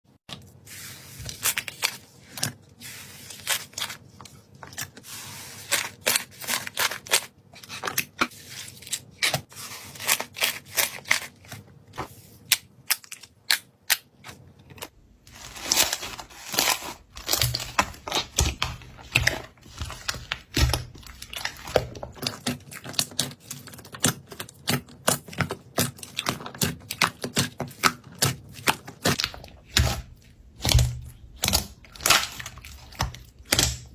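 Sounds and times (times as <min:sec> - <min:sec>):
slime clicking and popping: 0:29.2 - 0:33.9.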